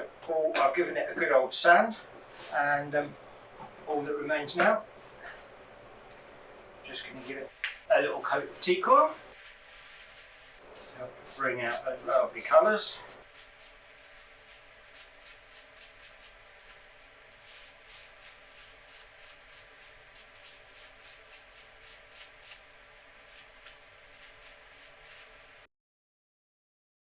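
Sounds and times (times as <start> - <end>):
cloth rubbing on wood: 8.3 - 22.6.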